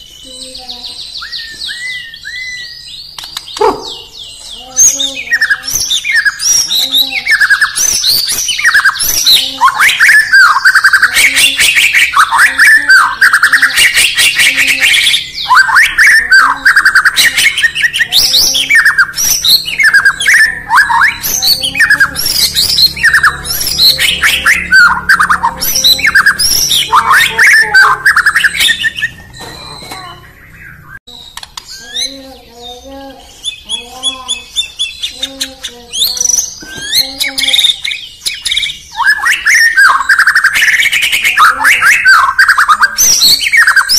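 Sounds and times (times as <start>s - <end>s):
bird singing whistled notes: 0.0s - 35.2s, 35.9s - 43.9s
bird chattering clicks: 0.8s - 9.6s, 31.2s - 32.2s.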